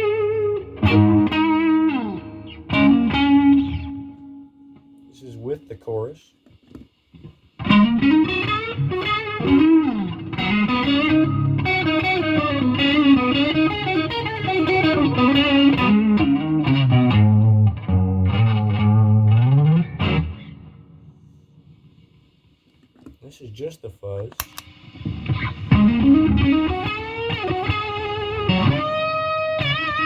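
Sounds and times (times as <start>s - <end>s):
fuzzy electric guitar lead: 0.0s - 5.1s, 7.6s - 21.1s, 24.8s - 30.0s.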